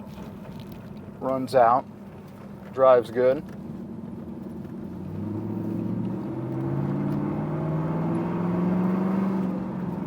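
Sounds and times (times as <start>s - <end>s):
car engine accelerating: 3.1s - 10.0s.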